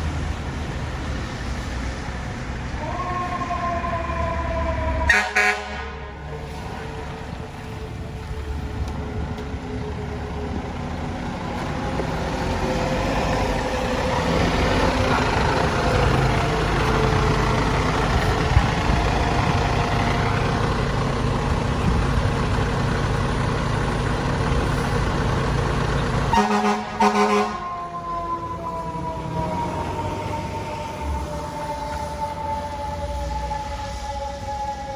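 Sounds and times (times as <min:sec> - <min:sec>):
fire truck diesel engine running: 0:00.0 - 0:34.9
air horn blasts: 0:05.1 - 0:06.2, 0:26.3 - 0:27.8
siren winding down: 0:27.2 - 0:34.9.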